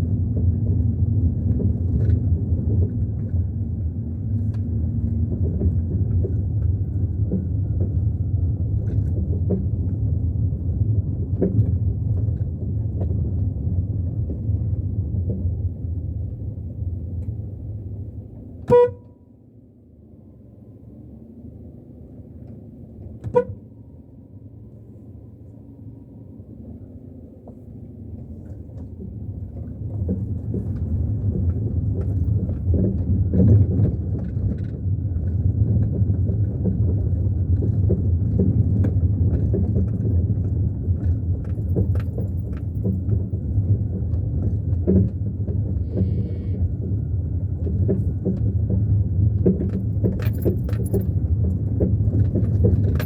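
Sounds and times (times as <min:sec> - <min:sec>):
engine and tyre rumble: 0:00.0 - 0:53.0
knocks and rattles from bumps: 0:47.6 - 0:53.0.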